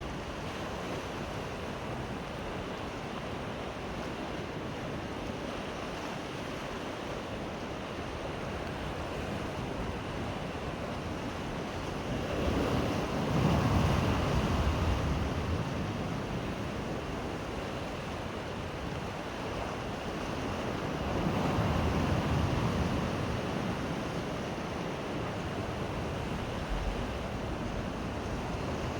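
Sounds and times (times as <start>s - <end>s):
sea waves washing ashore: 0.0s - 28.9s
wind buffeting microphone: 9.8s - 28.9s.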